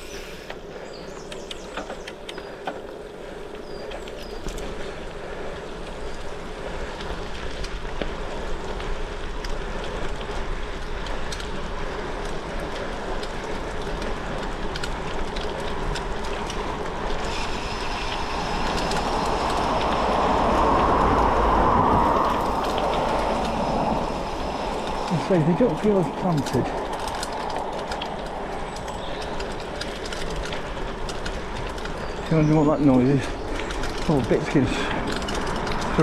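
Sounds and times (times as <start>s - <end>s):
bike tyres rolling on gravel: 0.0s - 36.0s
wind noise: 0.0s - 36.0s
small clicks: 0.1s - 5.0s, 22.2s - 36.0s.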